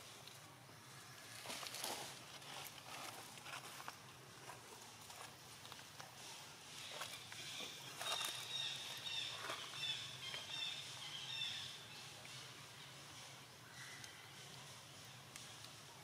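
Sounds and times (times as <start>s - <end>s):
bird chirping: 6.7s - 15.6s.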